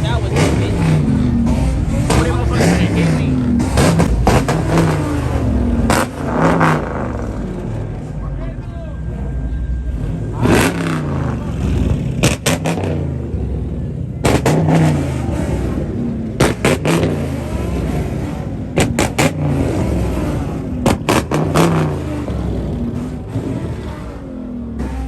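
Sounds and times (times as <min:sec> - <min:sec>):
car engine revving: 0:00.0 - 0:08.2, 0:09.1 - 0:25.0
sharp exhaust cracks: 0:10.4 - 0:13.0.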